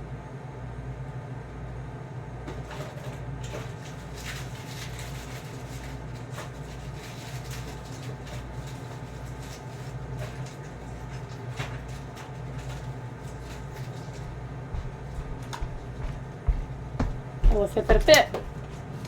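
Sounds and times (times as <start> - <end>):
food packages being handled: 2.6 - 19.0
steady low hum: 12.2 - 19.0.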